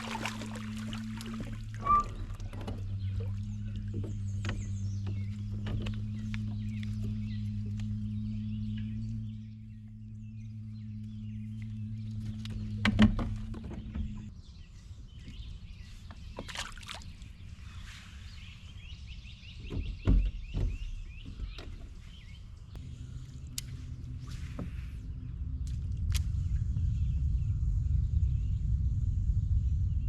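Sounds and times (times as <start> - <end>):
steady low hum: 0.0 - 19.6, 20.7 - 30.0
birds chirping: 0.0 - 30.0
knocks against boat: 19.6 - 21.8.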